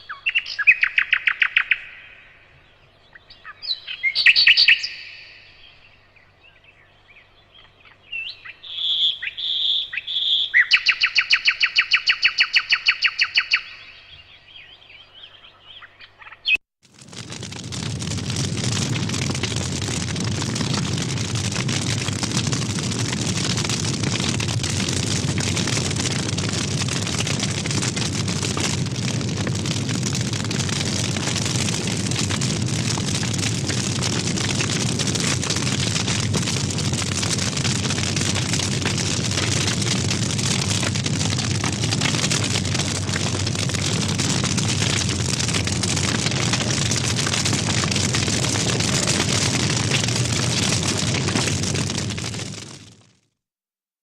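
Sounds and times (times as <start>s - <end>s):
fire crackling and rushing: 16.8s - 53.2s.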